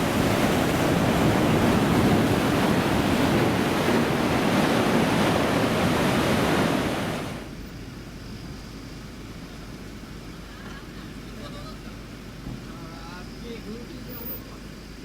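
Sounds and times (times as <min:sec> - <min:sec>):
wind on microphone: 0:00.0 - 0:07.5
ocean surf: 0:00.0 - 0:07.6.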